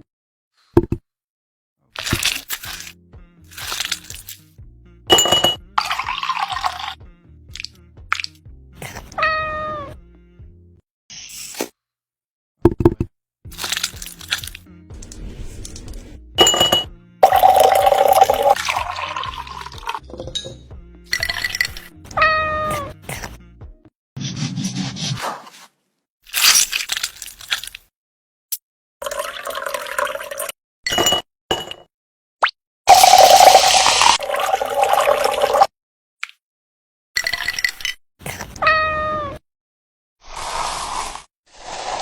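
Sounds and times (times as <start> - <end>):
music: 1.8 - 10.8, 13.4 - 24.0
cat meowing: 9.2 - 10.0, 22.2 - 23.0, 38.6 - 39.4.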